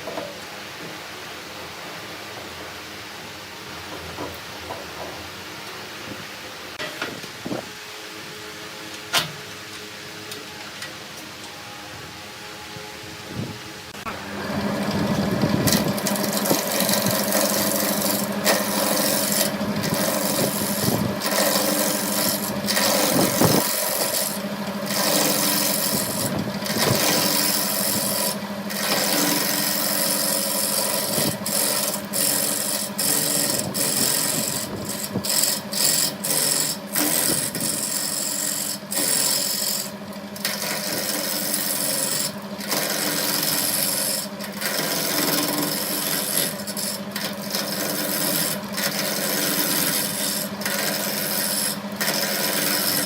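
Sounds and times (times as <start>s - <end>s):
lathe motor hum: 9.6s - 53.0s
turning tool scraping wood: 14.5s - 53.0s.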